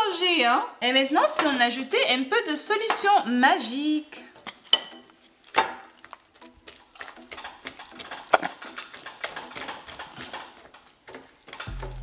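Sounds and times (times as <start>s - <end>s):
spatula squelching wet beaded slime: 4.5s - 11.5s.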